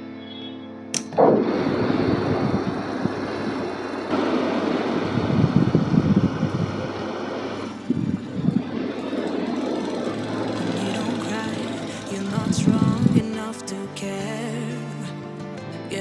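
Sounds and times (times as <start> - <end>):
sharp click: 0.9 - 1.4
fan blowing air rumble: 1.2 - 13.4.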